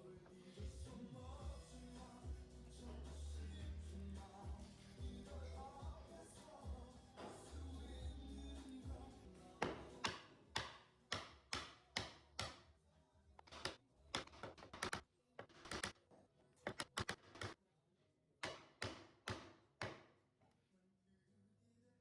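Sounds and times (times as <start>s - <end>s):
sharp wooden taps and knocks: 9.6s - 12.6s, 13.4s - 16.0s, 16.7s - 17.6s, 18.4s - 20.1s.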